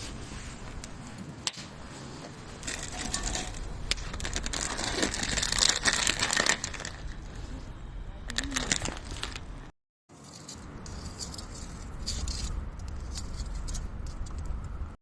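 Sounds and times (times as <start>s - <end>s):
campfire crackling and popping: 0.6s - 7.2s.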